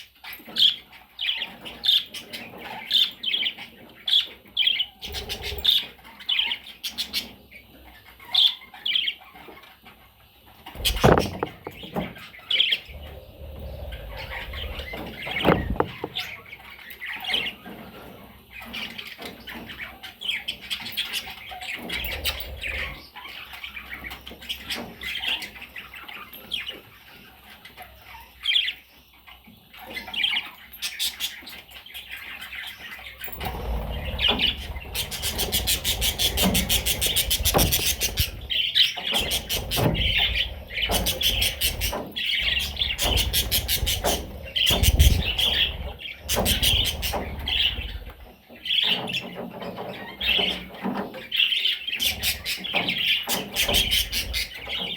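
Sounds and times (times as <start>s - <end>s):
budgerigars chirping: 0.5s - 10.0s, 10.7s - 17.7s, 18.5s - 54.9s
low thumps: 10.8s - 12.0s, 12.9s - 16.3s, 33.3s - 38.6s, 39.2s - 48.3s.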